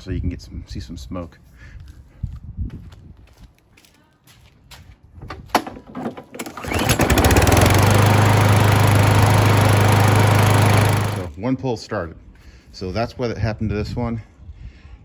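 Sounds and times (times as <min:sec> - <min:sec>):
lawnmower engine pull-started: 0:05.5 - 0:11.3.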